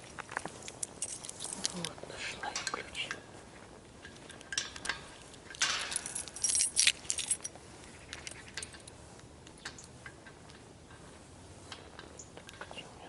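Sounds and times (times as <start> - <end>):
keys jangling: 0.0 - 1.9, 4.1 - 9.0.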